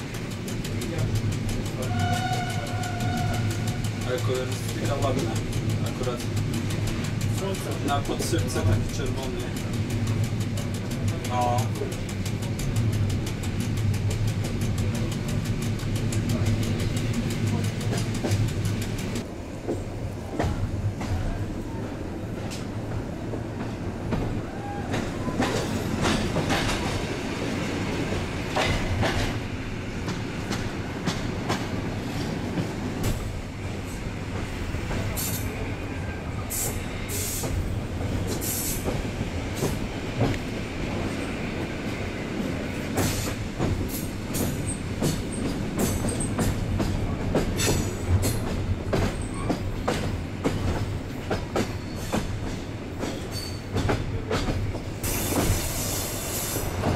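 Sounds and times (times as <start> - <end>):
clicks over rail joints: 0.0 - 19.8
train wheels rumbling on rail: 0.0 - 56.9
high wheel squeals: 51.7 - 52.2.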